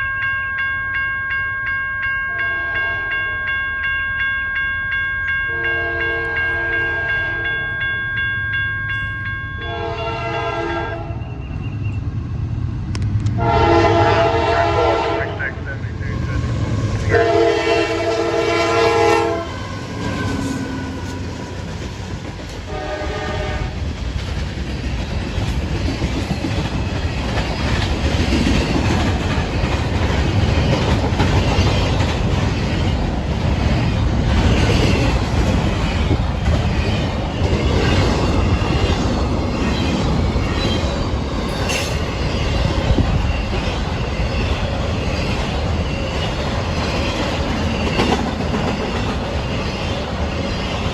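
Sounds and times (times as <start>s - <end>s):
train rumbling past: 5.3s - 50.9s
train air horn: 5.5s - 7.5s, 9.6s - 11.2s, 13.4s - 15.6s, 16.3s - 21.4s, 22.7s - 23.8s.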